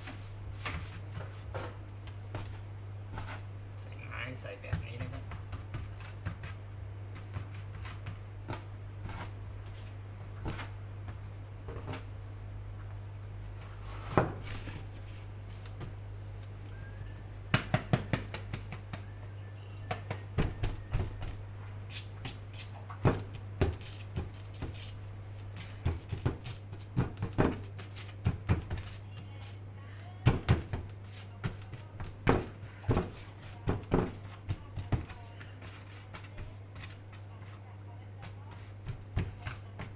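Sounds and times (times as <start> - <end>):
taps and clicks of kitchen utensils: 17.5 - 19.1.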